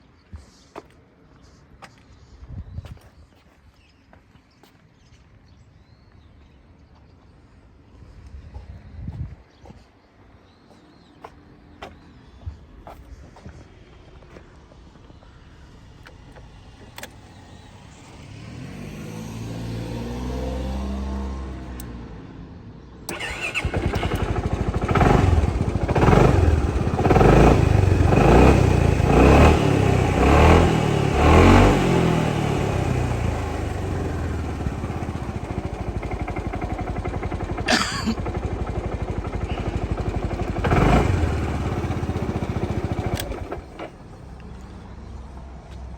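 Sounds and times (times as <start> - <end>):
scooter engine starting and idling: 23.1 - 44.4.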